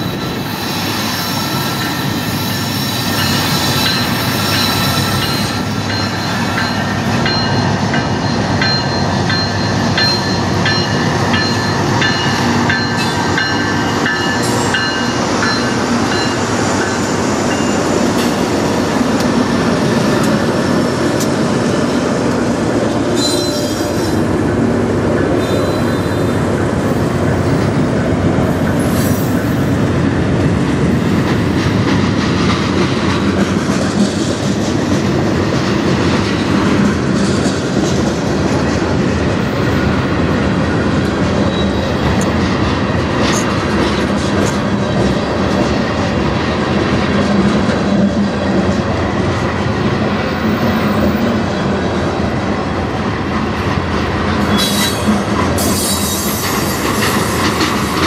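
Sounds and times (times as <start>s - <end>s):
high wheel squeal: 0.0s - 6.9s, 23.2s - 24.2s, 25.4s - 26.3s, 54.4s - 57.4s
train wheels rumbling on rails: 0.0s - 58.0s.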